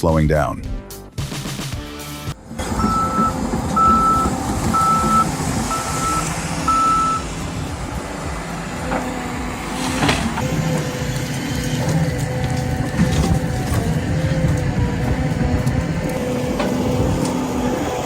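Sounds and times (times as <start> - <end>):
machine engine running: 2.4 - 18.0
reversing alarm beeping: 2.7 - 7.3.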